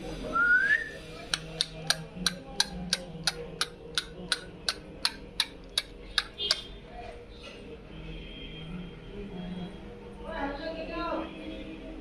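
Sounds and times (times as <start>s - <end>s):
parrot whistle: 0.4s - 1.0s
sharp clicks: 1.3s - 6.6s.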